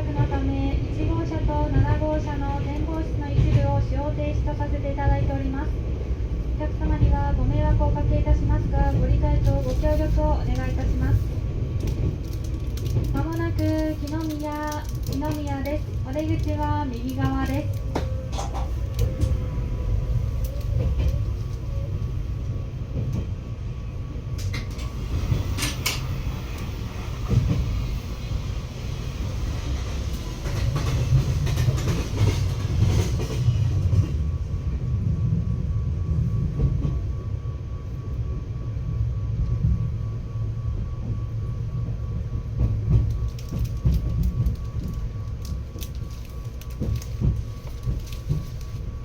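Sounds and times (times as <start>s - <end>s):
train low rumble: 0.0s - 49.0s
wheels clicking over rail joints: 11.8s - 19.4s, 42.6s - 48.9s.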